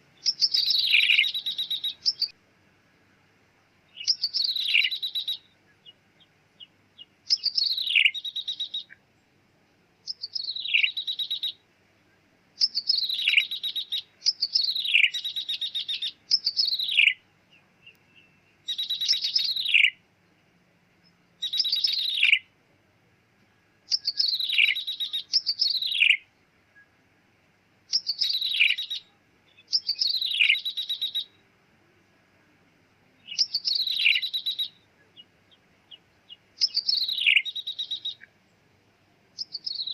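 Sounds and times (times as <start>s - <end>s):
bird mewing call with trill: 0.2s - 2.4s, 4.0s - 6.0s, 6.6s - 9.0s, 12.6s - 17.2s, 18.2s - 20.0s, 23.9s - 26.2s, 27.9s - 31.4s, 33.3s - 35.3s, 35.9s - 38.3s.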